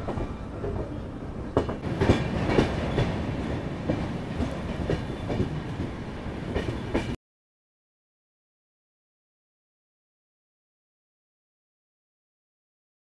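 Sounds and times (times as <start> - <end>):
train coaches rumbling on track: 0.0 - 7.2
wheels clattering on rails: 0.0 - 7.2.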